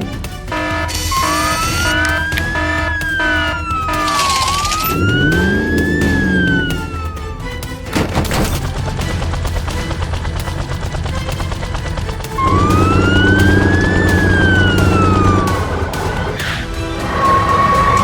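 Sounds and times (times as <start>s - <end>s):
vehicle engine: 0.0s - 18.0s
siren wailing: 0.5s - 7.5s, 12.4s - 18.0s.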